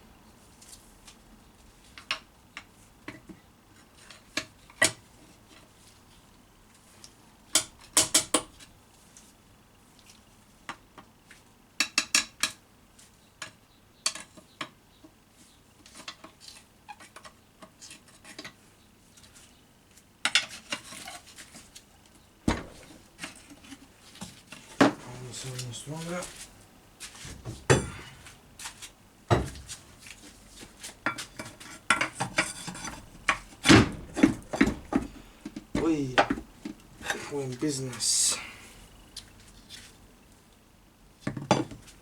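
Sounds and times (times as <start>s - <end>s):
dull knock: 22.5s - 23.1s.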